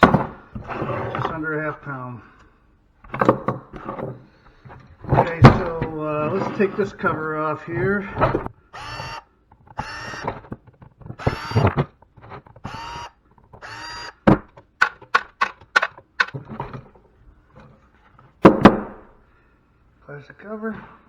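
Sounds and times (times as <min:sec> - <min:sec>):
loud thunk: 0:00.0 - 0:00.5, 0:18.4 - 0:19.1
power drill bursts: 0:08.7 - 0:10.4, 0:11.2 - 0:11.9, 0:12.6 - 0:14.3
sharp clicks and taps: 0:14.6 - 0:16.4.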